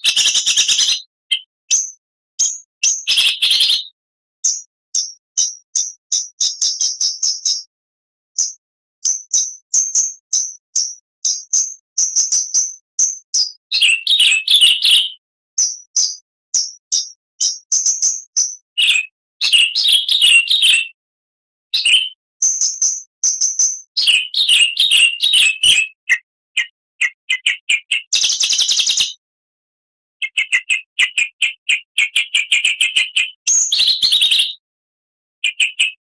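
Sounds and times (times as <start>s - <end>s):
bird singing: 0.0s - 7.7s, 8.4s - 21.0s, 21.8s - 29.2s, 30.2s - 34.6s
harsh buzzing bird trill: 0.0s - 7.7s.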